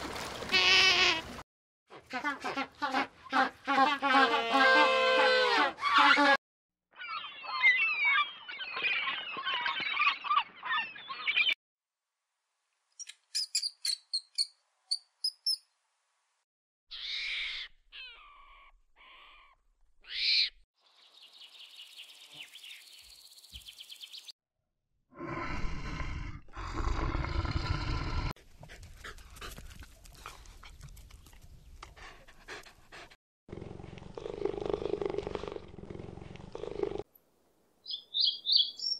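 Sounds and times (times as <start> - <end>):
short bird chirps: 37.8 - 38.9.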